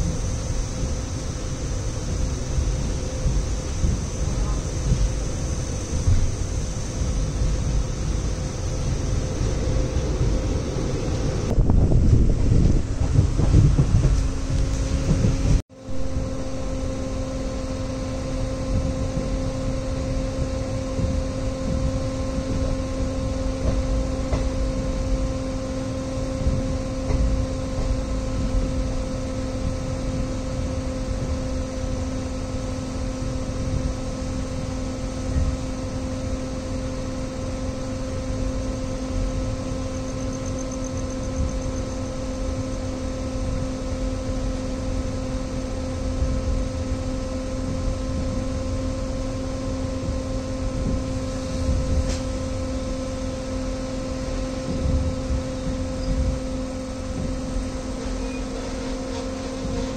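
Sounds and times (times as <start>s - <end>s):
constant droning hum: 0.0s - 59.9s
train wheels rumbling on track: 0.0s - 59.9s.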